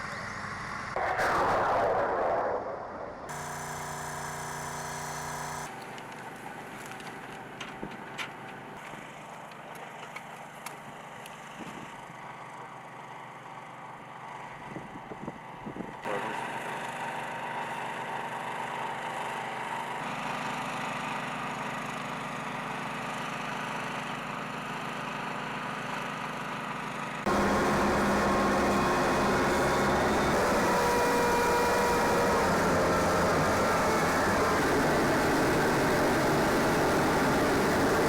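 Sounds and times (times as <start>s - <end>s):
engine noise: 0.0s - 38.0s
steady tones: 27.3s - 38.0s.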